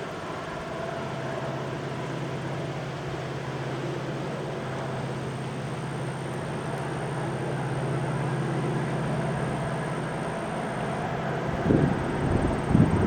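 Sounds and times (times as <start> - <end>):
train engine drone: 0.0 - 13.0
train rumbling: 4.7 - 13.0.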